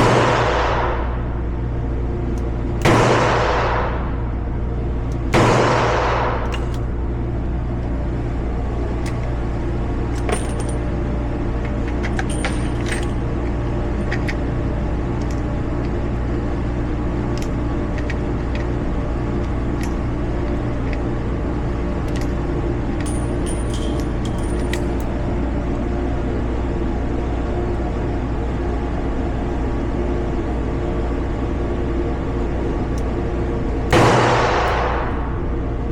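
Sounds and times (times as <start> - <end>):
steady low rumble: 0.0 - 35.9
metallic clicks and clinks: 6.4 - 6.9, 10.1 - 10.9, 11.6 - 14.4, 22.0 - 25.3.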